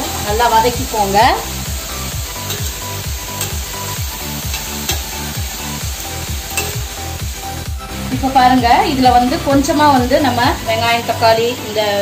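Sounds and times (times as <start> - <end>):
background music with steady beat: 0.0 - 12.0
vegetables sizzling on a griddle: 0.0 - 12.0
spatula scraping and tapping griddle: 2.4 - 5.3, 6.5 - 6.9.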